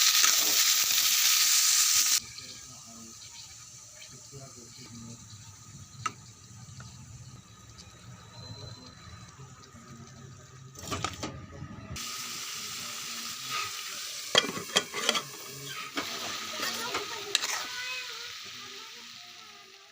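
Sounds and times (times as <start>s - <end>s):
chicken sizzling in a pan: 0.0s - 10.5s, 12.0s - 19.9s
utensil clattering against pan: 14.3s - 15.3s.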